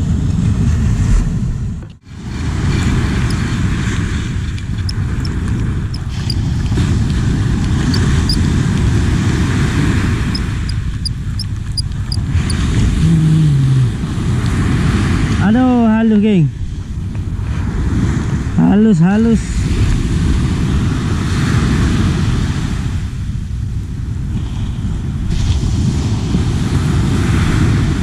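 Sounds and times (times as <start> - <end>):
wind buffeting microphone: 0.0 - 13.0, 16.6 - 18.6, 19.4 - 28.0
fishing reel ticking: 4.8 - 6.5, 10.3 - 12.3.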